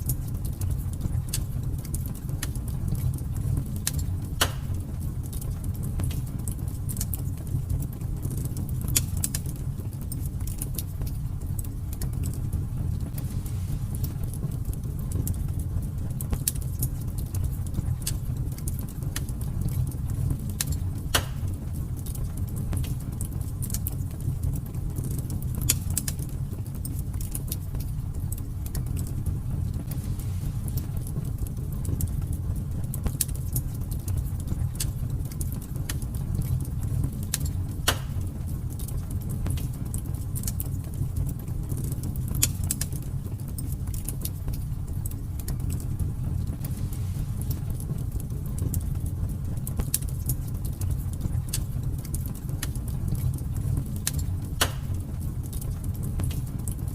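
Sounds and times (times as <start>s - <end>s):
fireplace fire crackling: 0.0s - 56.9s
low fire rumble: 0.0s - 56.9s
sharp pops of fire: 0.1s - 7.5s, 13.0s - 24.0s, 25.0s - 27.9s, 33.0s - 40.7s, 46.5s - 56.5s.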